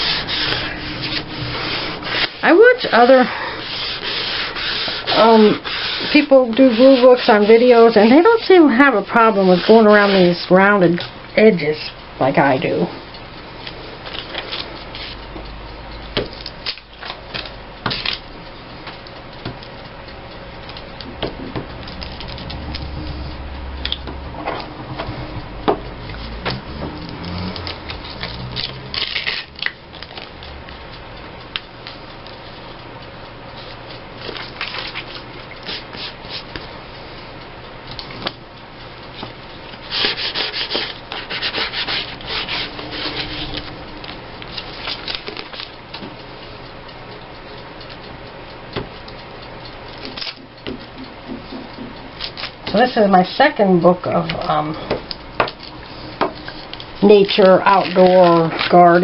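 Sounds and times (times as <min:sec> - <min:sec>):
paper scraping and rustling: 0:39.9 - 0:43.7.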